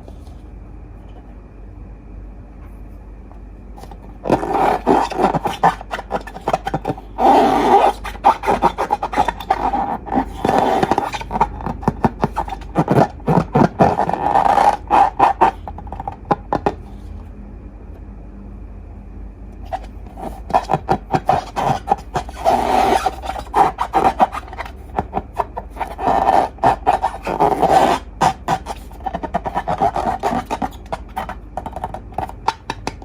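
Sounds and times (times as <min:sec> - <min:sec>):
slime and balloons squeaking: 0:03.8 - 0:16.8, 0:19.7 - 0:33.0.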